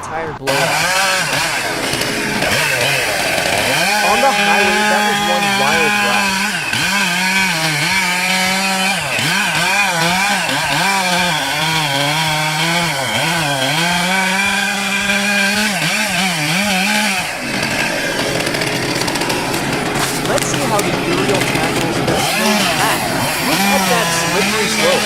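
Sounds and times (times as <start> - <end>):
small engine at high revs: 0.5 - 25.0
rough noisy sound: 17.3 - 25.0.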